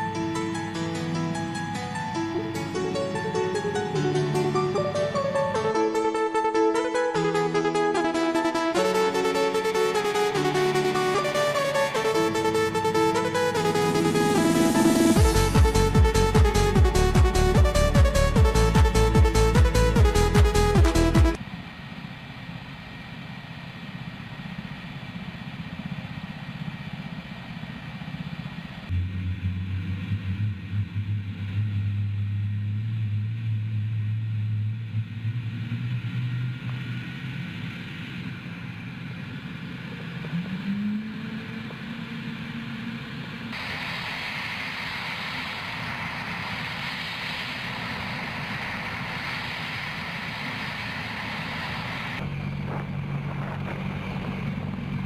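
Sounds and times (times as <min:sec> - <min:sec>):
helicopter engine and rotor: 0:10.6 - 0:28.9, 0:36.5 - 0:55.0.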